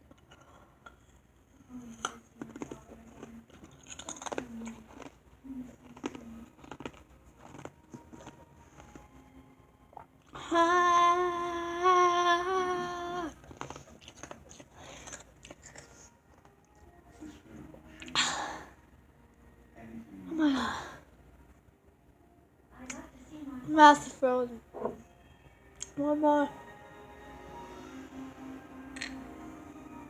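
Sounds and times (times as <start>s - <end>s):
person humming: 10.4s - 13.4s.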